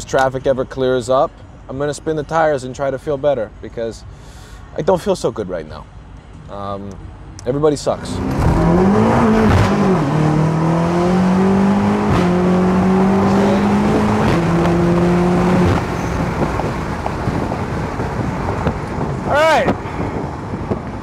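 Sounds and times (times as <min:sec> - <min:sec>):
wind and road noise: 0:00.0 - 0:21.0
car engine accelerating with upshifts: 0:08.0 - 0:21.0.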